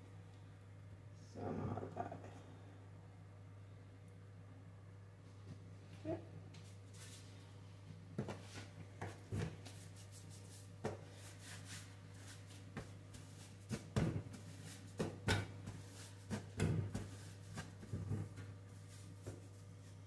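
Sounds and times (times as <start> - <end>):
steady low hum: 0.0 - 20.0
hands handling bread dough: 6.6 - 20.0.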